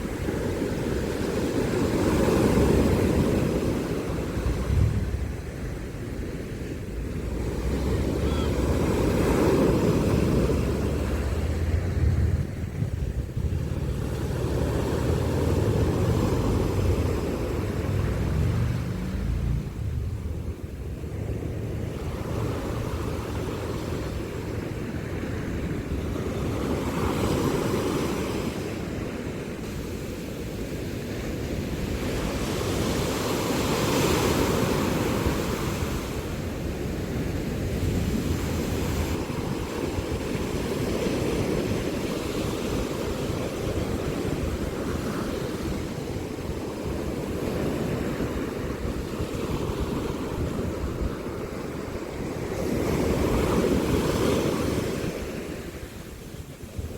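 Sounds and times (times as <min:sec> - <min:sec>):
sea waves breaking on shore: 0:00.0 - 0:56.9
wind on microphone: 0:00.0 - 0:56.9.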